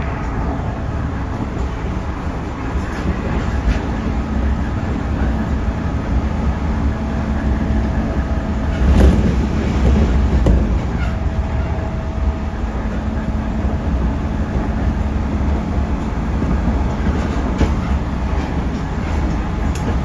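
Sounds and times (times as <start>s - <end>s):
train rumbling from inside: 0.0s - 20.0s
wheels clicking over rail joints: 2.9s - 13.0s, 13.6s - 20.0s.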